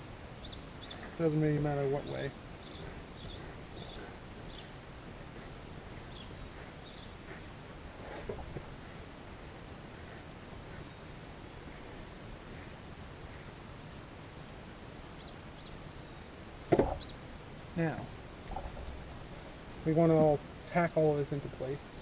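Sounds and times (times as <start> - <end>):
faint rustle: 0.0 - 14.2, 16.7 - 22.0
cricket chirping: 0.0 - 22.0.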